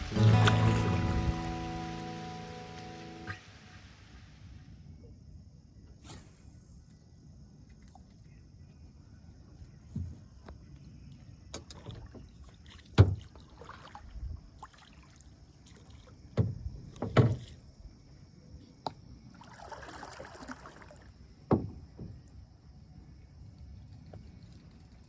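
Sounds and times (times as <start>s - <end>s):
water swishing: 0.0s - 4.4s, 19.3s - 21.1s
paddle knocking against kayak: 16.4s - 17.5s, 21.5s - 22.2s.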